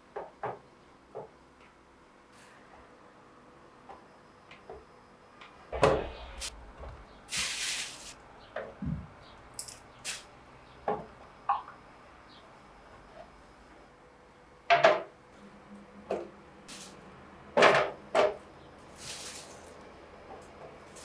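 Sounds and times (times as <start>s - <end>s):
short hiss: 7.3s - 8.2s.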